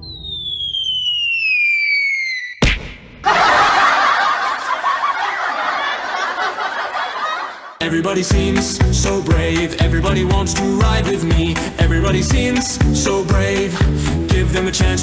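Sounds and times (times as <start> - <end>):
whistle sliding downward: 0.0 - 2.6
burst of laughter: 3.2 - 7.8.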